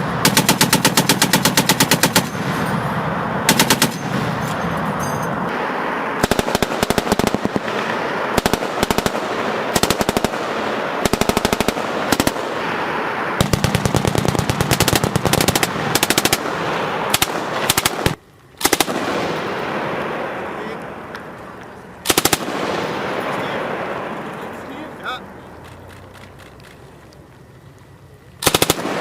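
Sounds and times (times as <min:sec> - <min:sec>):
machine gun bursts: 0:00.0 - 0:02.9, 0:03.5 - 0:04.7, 0:06.2 - 0:12.8, 0:13.4 - 0:19.6, 0:22.0 - 0:23.6, 0:28.4 - 0:29.0.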